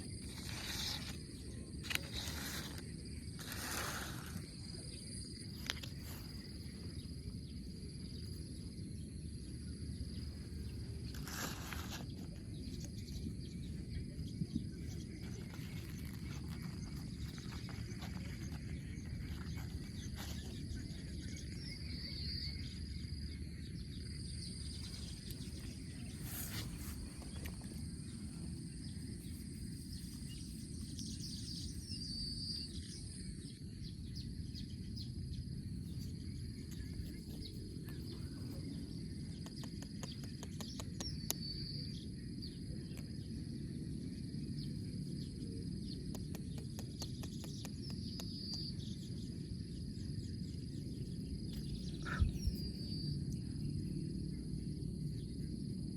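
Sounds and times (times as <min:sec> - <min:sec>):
high insect drone: 0:00.0 - 0:55.9
bird chirps: 0:45.3 - 0:53.9.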